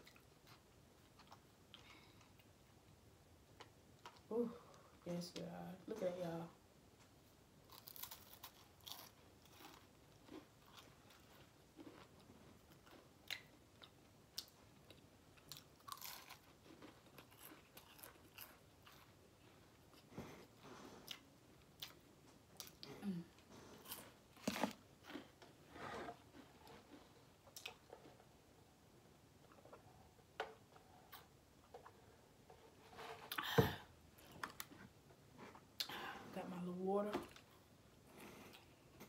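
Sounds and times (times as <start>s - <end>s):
person chewing and crunching food: 0.0s - 4.3s, 7.6s - 32.3s.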